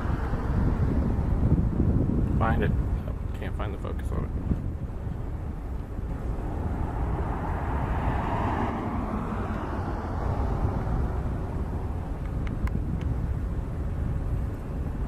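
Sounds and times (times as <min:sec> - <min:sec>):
steady low rumble: 0:00.0 - 0:15.0
distant jet airliner engine: 0:05.5 - 0:13.2.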